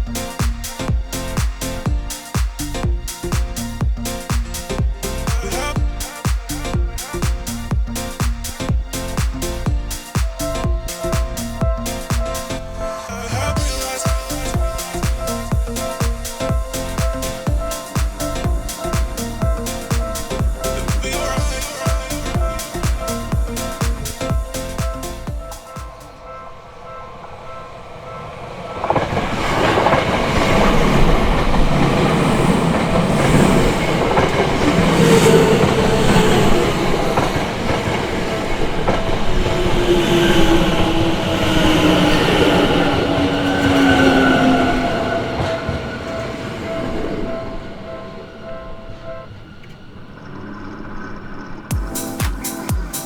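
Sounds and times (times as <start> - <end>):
crossing warning bell: 13.6 - 50.2.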